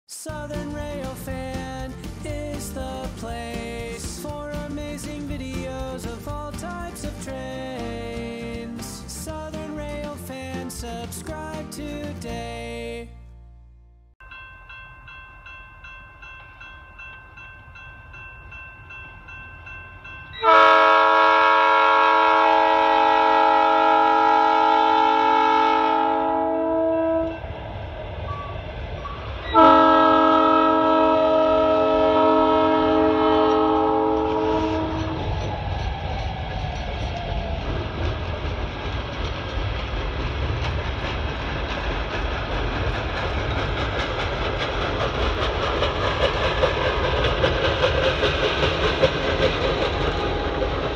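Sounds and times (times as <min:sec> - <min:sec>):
train rumbling on rails: 0:00.2 - 0:13.0, 0:14.3 - 0:50.9
multi-chime air horn blasts: 0:20.3 - 0:27.4, 0:29.5 - 0:35.2.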